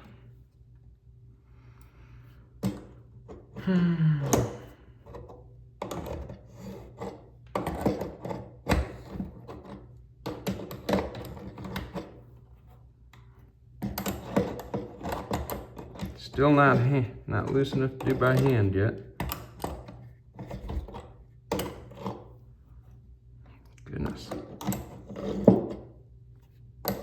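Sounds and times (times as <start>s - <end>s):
wrench scraping on nut: 5.1s - 9.8s.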